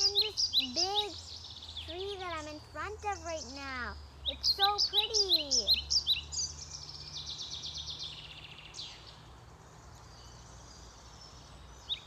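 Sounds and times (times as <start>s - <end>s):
songbird trilling: 0.0s - 9.3s.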